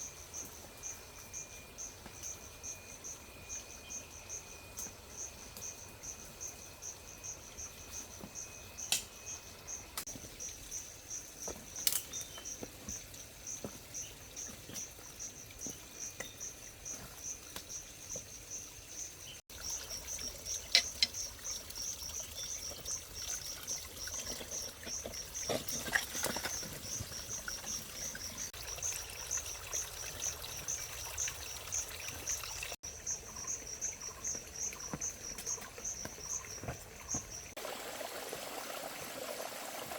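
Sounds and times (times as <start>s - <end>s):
insects chirping: 0.0s - 37.8s
water pouring: 19.5s - 32.8s, 37.6s - 39.9s.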